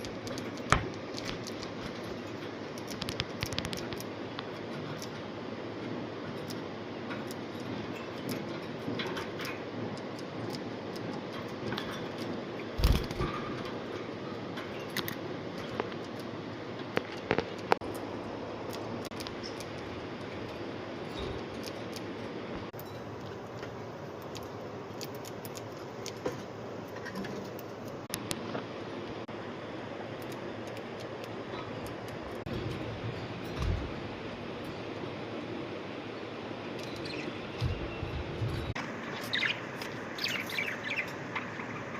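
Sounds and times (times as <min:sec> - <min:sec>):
birds clicking and scratching in cage: 0:00.0 - 0:28.2, 0:30.1 - 0:35.1.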